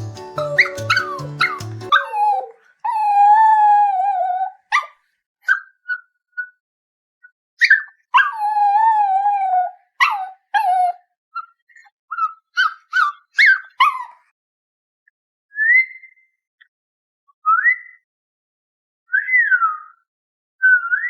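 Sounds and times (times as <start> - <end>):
dog howling and yelping: 0.3 - 4.6, 8.2 - 11.0.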